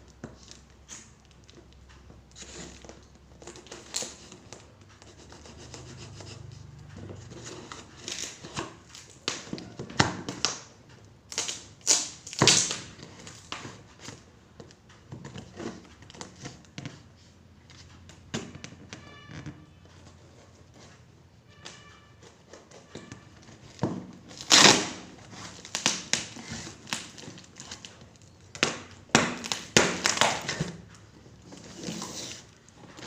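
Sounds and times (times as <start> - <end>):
package wrapping rustling and tearing: 23.1 - 30.9.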